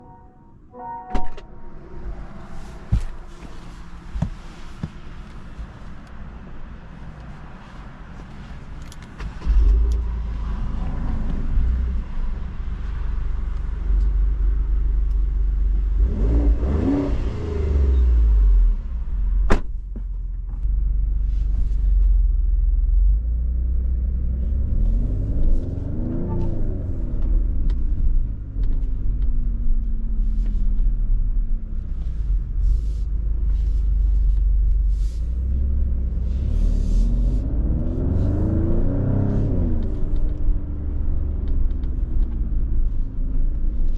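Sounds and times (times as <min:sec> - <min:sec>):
car engine revving: 0:35.0 - 0:43.0.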